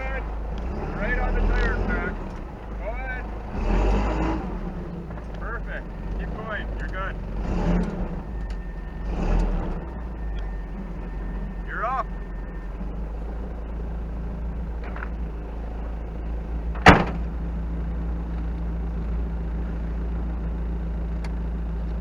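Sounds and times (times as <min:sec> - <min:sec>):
off-road vehicle engine running: 0:00.0 - 0:22.0
sharp clunk: 0:16.8 - 0:17.3.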